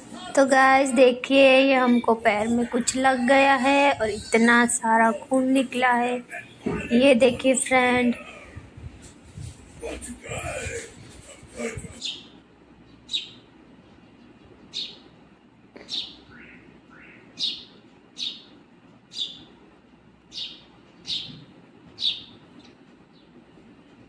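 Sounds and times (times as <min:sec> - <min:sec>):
bird chirping: 0:11.9 - 0:15.1, 0:15.8 - 0:19.6, 0:20.2 - 0:23.4
lower gliding bird calls: 0:15.8 - 0:18.5, 0:19.1 - 0:19.5, 0:20.3 - 0:21.4.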